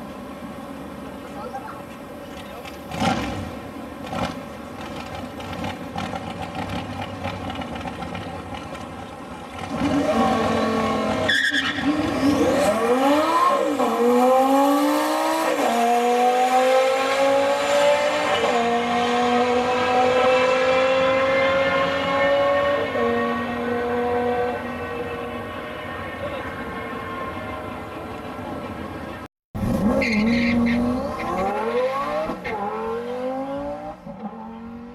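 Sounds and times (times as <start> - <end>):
sports car engine revving: 2.8 - 25.3, 29.6 - 34.9
tire squeal: 9.6 - 12.8, 24.3 - 29.1, 29.7 - 31.7.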